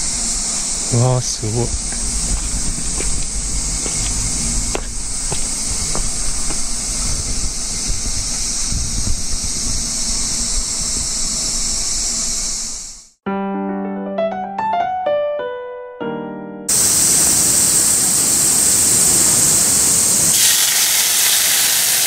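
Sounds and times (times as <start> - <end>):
insect chorus drone: 0.0 - 13.2, 16.7 - 22.0
low rumble: 1.4 - 11.6.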